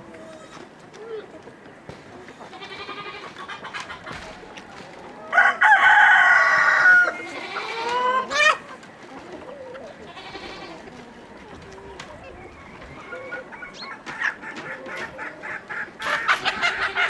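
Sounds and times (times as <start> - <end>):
chicken clucking: 0.0 - 17.0
rooster crowing: 5.3 - 7.3.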